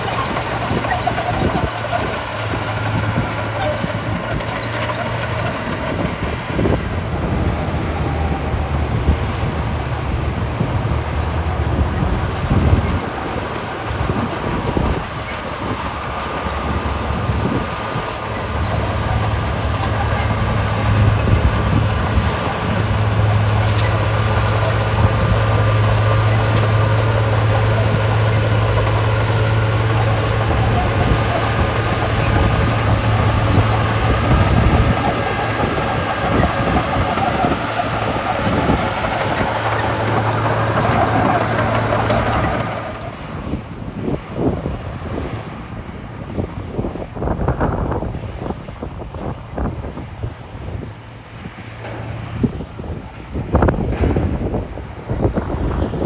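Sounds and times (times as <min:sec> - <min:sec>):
bulldozer diesel engine droning: 0:00.0 - 0:56.0
metal clanks: 0:51.4 - 0:56.0.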